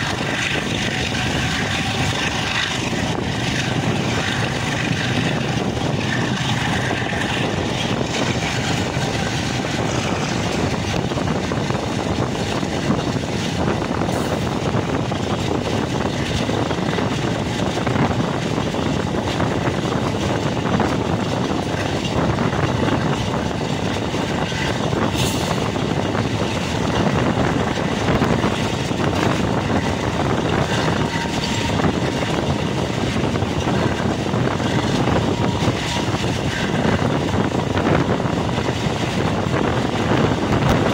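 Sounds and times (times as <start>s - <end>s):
locomotive engine droning: 0.0s - 40.9s.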